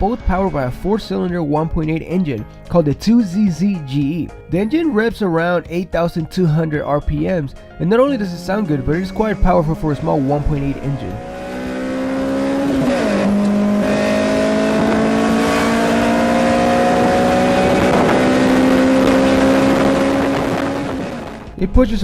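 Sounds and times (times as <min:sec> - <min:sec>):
car engine accelerating: 0:07.8 - 0:22.0.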